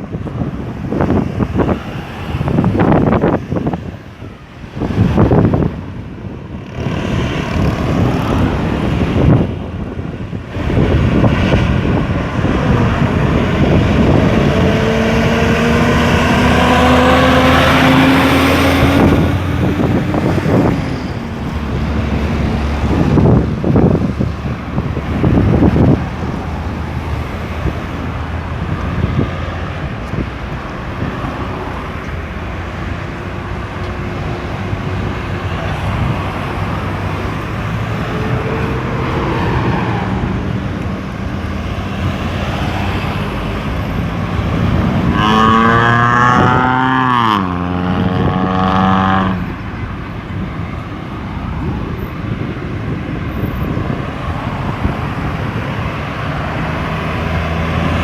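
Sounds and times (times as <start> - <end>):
road traffic engines: 0.0 - 58.0
vehicle passing close: 6.6 - 49.6.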